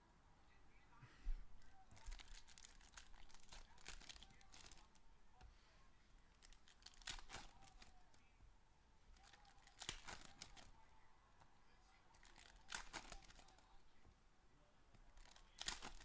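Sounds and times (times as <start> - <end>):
packaging crinkling and tearing: 1.9 - 5.0, 6.3 - 8.1, 9.2 - 10.7, 12.2 - 13.6, 15.1 - 16.0.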